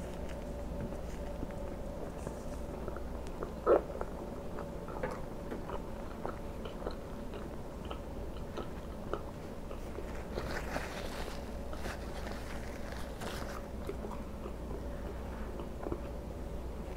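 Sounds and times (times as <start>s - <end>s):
mouth chewing wet clicks: 1.2s - 10.0s.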